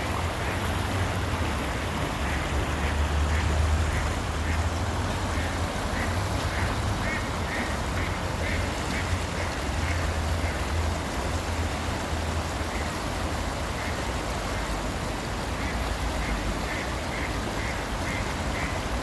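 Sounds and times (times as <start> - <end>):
ducks quacking: 2.2 - 10.7.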